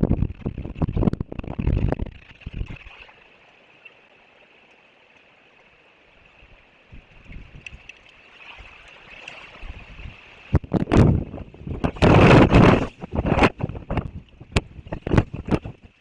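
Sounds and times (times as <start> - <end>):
wind buffeting microphone: 0.0 - 2.9, 6.9 - 7.9, 9.6 - 16.0.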